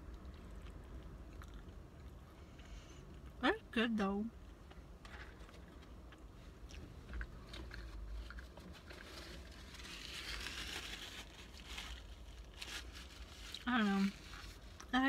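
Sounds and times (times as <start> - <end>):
person chewing: 0.0 - 2.3.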